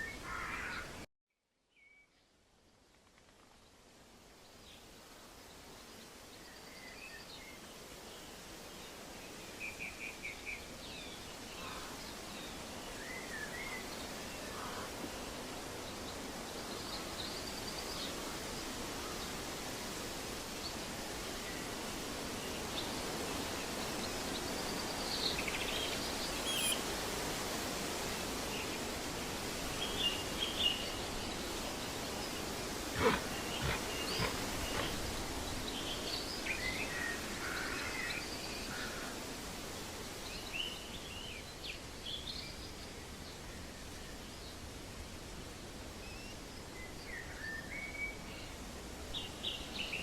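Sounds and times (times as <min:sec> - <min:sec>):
outdoor background noise: 0:00.0 - 0:50.0
bird chirps: 0:25.6 - 0:26.8.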